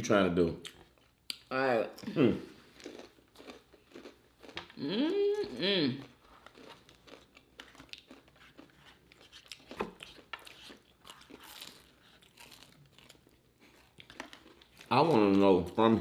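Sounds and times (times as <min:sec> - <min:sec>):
crunchy chewing: 0:02.8 - 0:04.8, 0:05.4 - 0:15.8.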